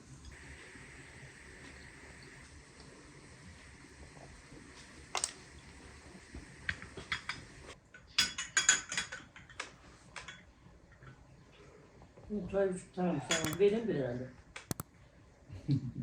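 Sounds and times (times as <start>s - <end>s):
faint hiss: 0.3s - 7.8s
dishes and cutlery clinking: 8.2s - 9.6s.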